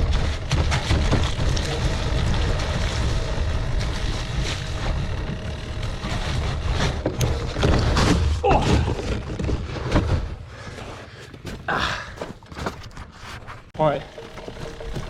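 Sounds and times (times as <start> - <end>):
bike rattling over rough ground: 0.0 - 15.0.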